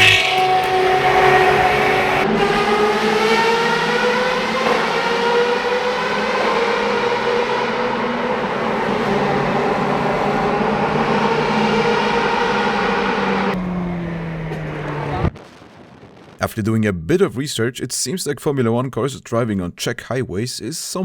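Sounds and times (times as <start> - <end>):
race car engine at high revs: 0.0 - 15.4.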